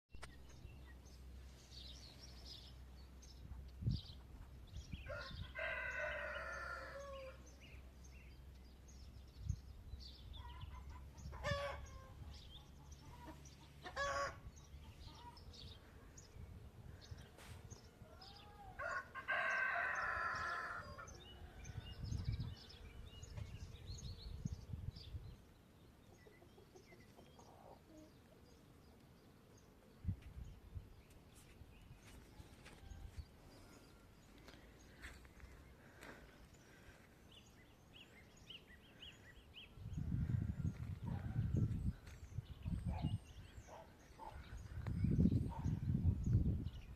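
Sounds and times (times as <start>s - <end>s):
rooster crowing: 5.1s - 7.4s, 18.2s - 21.8s
bird calls and chirps: 7.0s - 18.7s, 36.6s - 46.9s.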